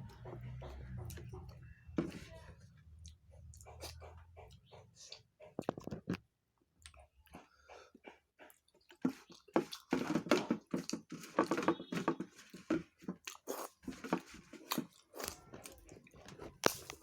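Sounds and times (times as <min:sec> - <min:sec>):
person chewing with mouth clicks: 0:03.0 - 0:06.1, 0:06.8 - 0:10.0, 0:13.1 - 0:17.0.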